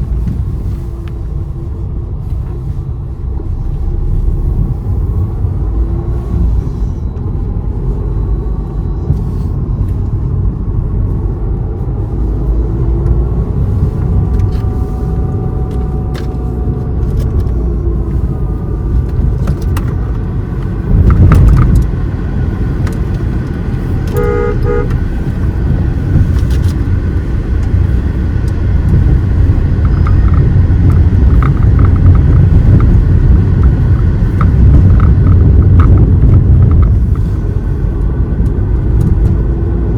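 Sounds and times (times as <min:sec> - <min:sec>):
car engine and road rumble: 0:00.0 - 0:39.9
vehicle horn toot: 0:24.1 - 0:25.1.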